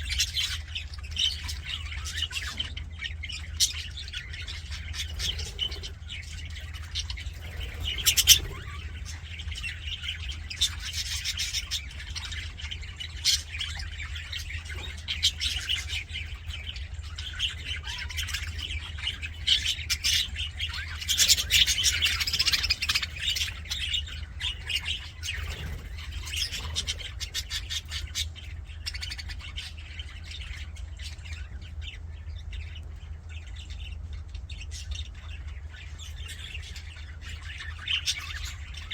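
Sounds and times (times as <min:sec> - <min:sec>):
budgerigars chattering and warbling: 0:00.0 - 0:38.9
steady low hum: 0:00.0 - 0:38.9
sharp bird squawks and chirps: 0:03.6 - 0:12.2.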